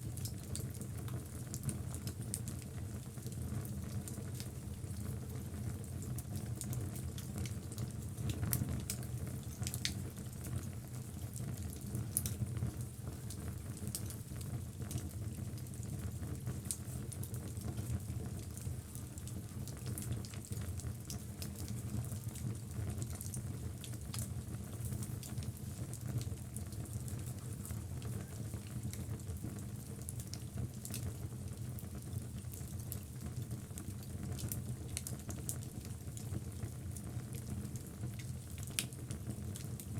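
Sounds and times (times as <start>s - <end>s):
low rumble of flames: 0.0s - 39.9s
fire crackling and popping: 0.1s - 39.9s.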